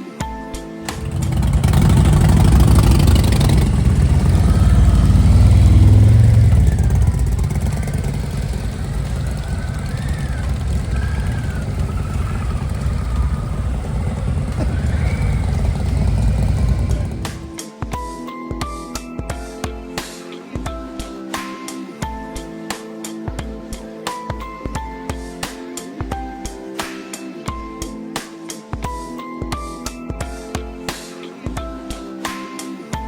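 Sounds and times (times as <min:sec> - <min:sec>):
motorcycle engines running: 0:00.9 - 0:17.6.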